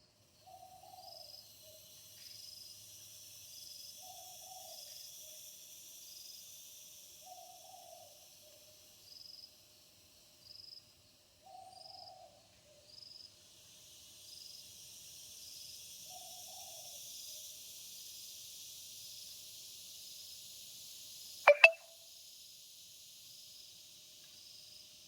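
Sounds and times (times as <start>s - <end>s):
steady hiss: 1.3s - 10.3s, 13.4s - 21.4s
faint high chirp: 21.5s - 21.8s.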